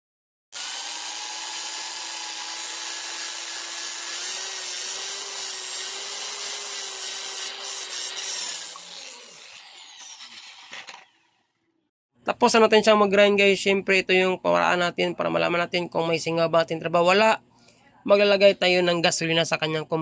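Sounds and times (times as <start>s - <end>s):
power drill grinding valves: 0.6s - 11.5s.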